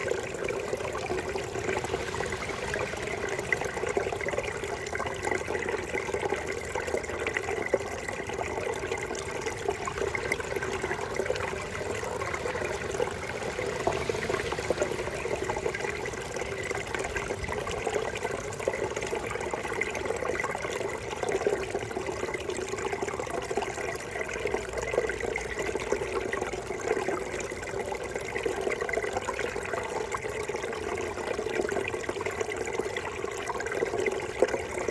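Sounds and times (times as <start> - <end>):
brook babbling: 0.0 - 34.9.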